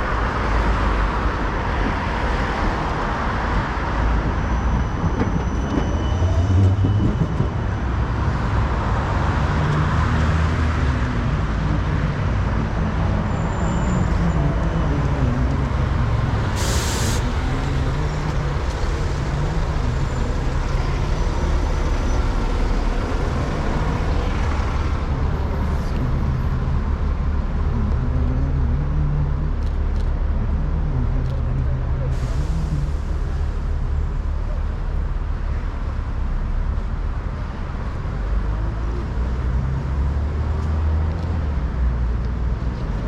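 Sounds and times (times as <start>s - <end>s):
city traffic rumble: 0.0s - 43.0s
air brakes hissing: 16.5s - 17.5s.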